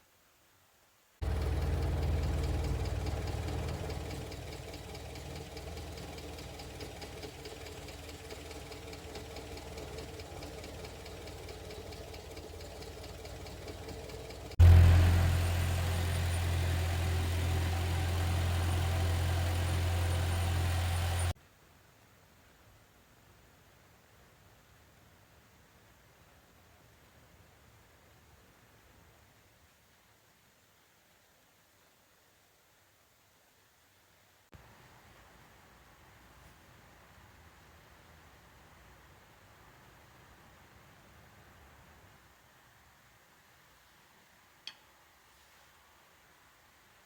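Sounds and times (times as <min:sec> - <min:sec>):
car engine idling: 0:01.2 - 0:21.4.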